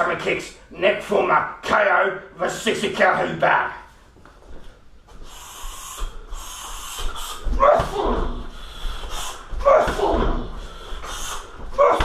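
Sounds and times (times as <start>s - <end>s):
sharp hissing exhales: 5.2s - 7.5s, 8.5s - 9.6s, 10.6s - 11.6s
person grunting: 7.3s - 8.5s, 9.5s - 10.7s, 11.3s - 12.0s.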